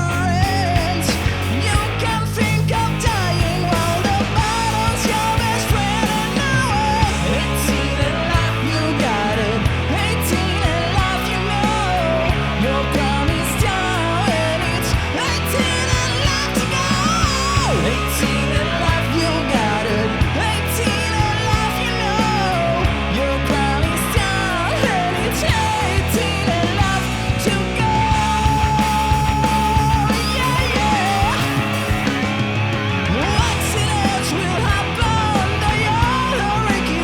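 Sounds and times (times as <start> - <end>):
hard rock band playing: 0.0 - 37.0
man singing: 0.0 - 37.0.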